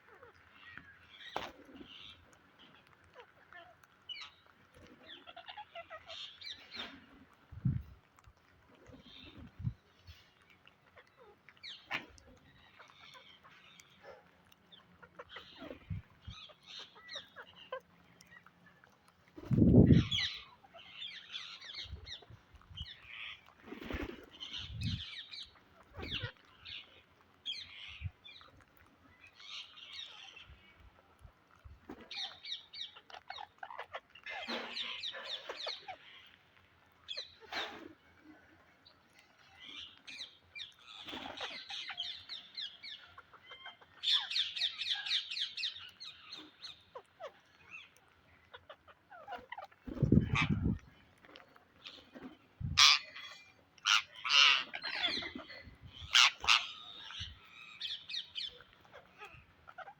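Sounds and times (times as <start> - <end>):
parakeets squawking: 5.0 - 6.5, 14.7 - 18.5, 19.5 - 22.2, 24.4 - 28.1, 32.1 - 36.3, 39.5 - 50.8, 52.6 - 59.9.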